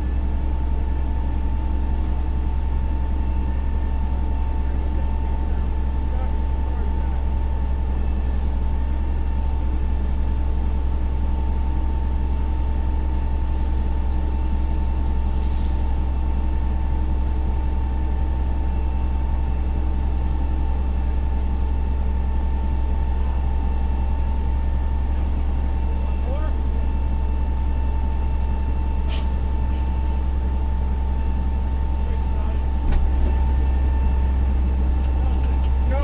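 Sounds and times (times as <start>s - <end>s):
diesel engine idling: 0.0s - 36.0s
thin steady whine: 14.3s - 36.0s.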